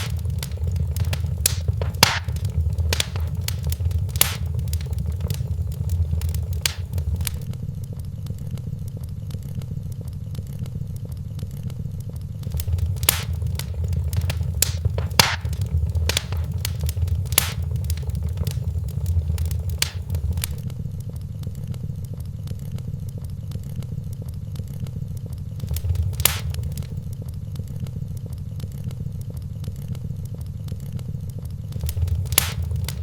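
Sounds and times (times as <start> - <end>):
fire crackling and popping: 0.0 - 7.5, 12.4 - 20.7, 25.6 - 27.2, 31.7 - 33.0
fire rumbling: 0.0 - 7.5, 12.4 - 20.7, 25.6 - 27.2, 31.7 - 33.0.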